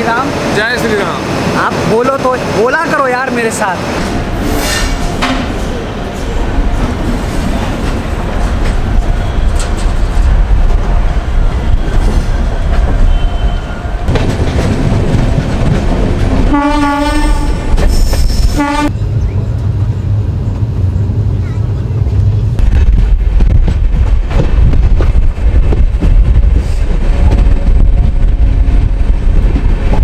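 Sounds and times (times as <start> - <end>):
train wheels rumbling on rails: 0.0 - 30.0
train horn blasts: 13.0 - 14.0, 16.5 - 17.7, 18.6 - 19.0.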